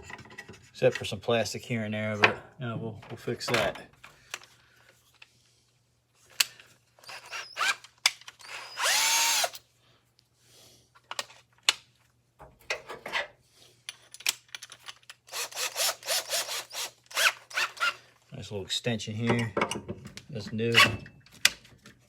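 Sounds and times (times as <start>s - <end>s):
power drill driving screws: 7.0s - 7.8s, 8.4s - 9.6s, 15.3s - 18.0s
tools and metal parts clicking: 13.9s - 15.7s.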